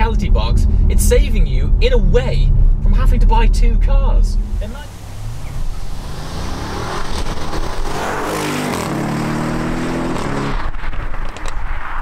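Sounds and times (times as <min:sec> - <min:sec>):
exhaust cracks: 0:00.0 - 0:12.0
car engine accelerating hard: 0:04.3 - 0:11.4.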